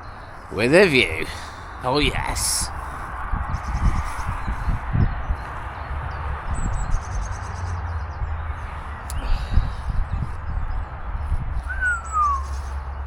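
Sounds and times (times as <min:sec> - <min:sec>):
distant motorway traffic hum: 0:00.0 - 0:13.0
wind on microphone: 0:01.2 - 0:13.0
bird chirping: 0:11.6 - 0:12.8.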